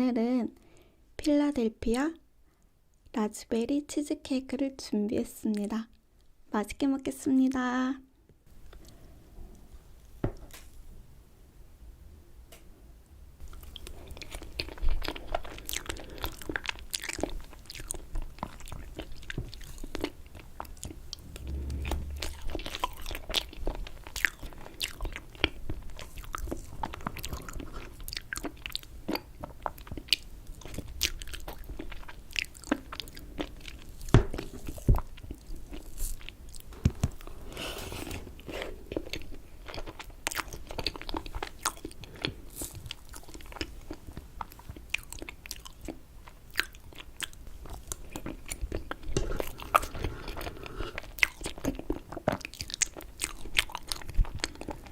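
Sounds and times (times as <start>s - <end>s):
biting and chewing: 13.5s - 22.8s, 38.4s - 54.9s.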